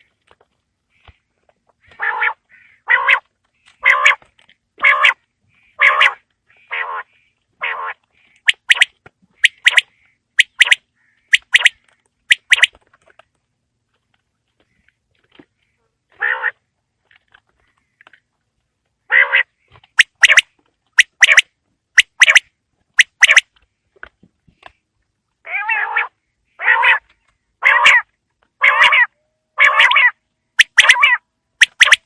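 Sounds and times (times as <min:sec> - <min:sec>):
quail calling: 0:01.8 - 0:12.8, 0:16.1 - 0:16.6, 0:19.1 - 0:23.4, 0:25.5 - 0:32.0.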